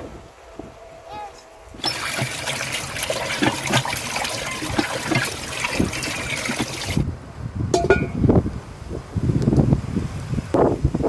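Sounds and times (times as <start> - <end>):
water pouring and splashing: 1.8 - 7.0.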